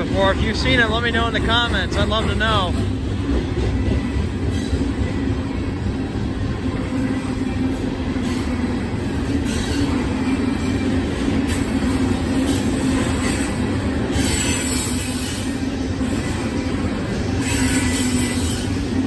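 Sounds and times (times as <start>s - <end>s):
train wheels rumbling on rails: 0.0s - 19.0s
wheel squeal: 12.4s - 16.4s, 17.3s - 19.0s.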